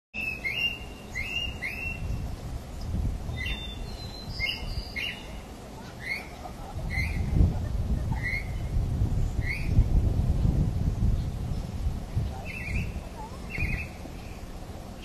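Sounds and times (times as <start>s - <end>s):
birds chirping: 0.2s - 15.0s
low steady rumble: 0.2s - 15.0s.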